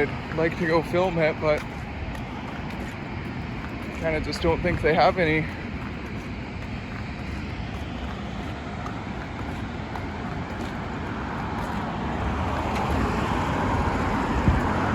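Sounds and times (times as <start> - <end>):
road traffic noise: 0.0 - 14.9
vehicle approaching: 0.0 - 14.9.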